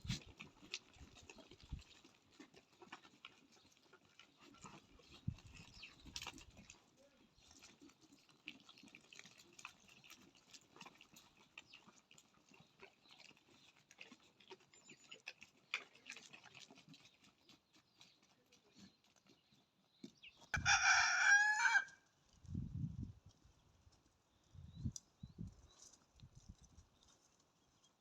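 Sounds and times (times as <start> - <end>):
faint goat herd: 0.0 - 28.0.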